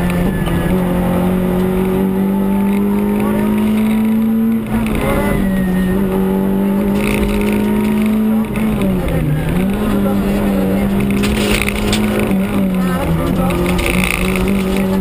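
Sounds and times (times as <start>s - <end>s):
rally car engine at high revs: 0.0s - 15.0s.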